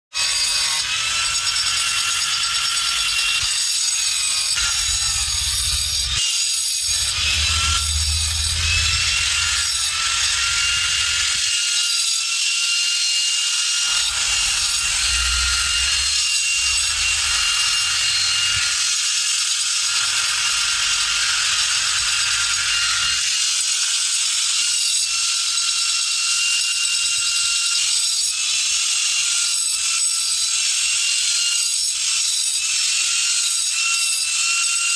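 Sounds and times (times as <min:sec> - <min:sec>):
rasping and scraping: 0:00.2 - 0:12.4, 0:13.0 - 0:19.1
power tool high whine: 0:00.2 - 0:34.9
low rumble: 0:04.6 - 0:06.2, 0:06.8 - 0:11.4, 0:14.1 - 0:18.4.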